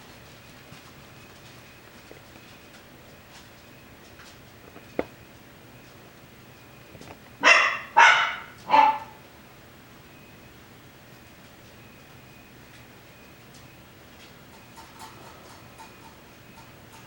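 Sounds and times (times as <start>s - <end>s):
dog yapping barks: 7.4s - 9.2s.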